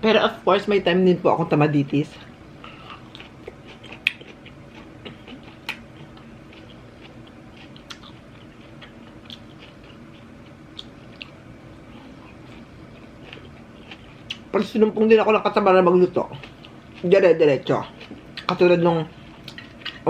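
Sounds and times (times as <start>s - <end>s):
low room hum: 0.0s - 20.0s
person chewing food: 2.6s - 14.5s, 16.3s - 18.6s, 19.2s - 20.0s.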